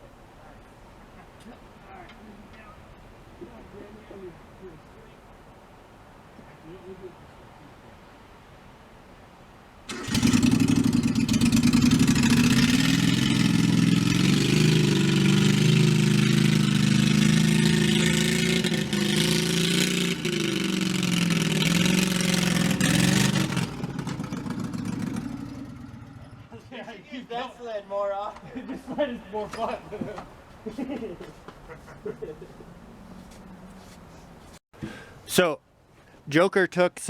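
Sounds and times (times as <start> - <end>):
vehicle engine revving: 9.9 - 26.6.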